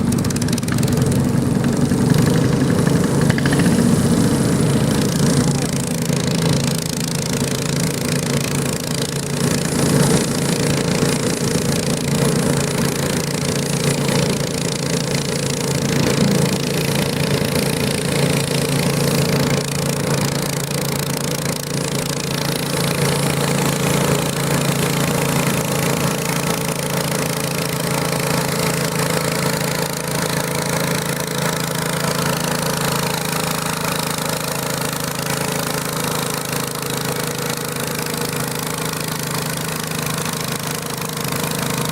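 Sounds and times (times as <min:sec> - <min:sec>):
garden tractor engine running: 0:00.0 - 0:41.9.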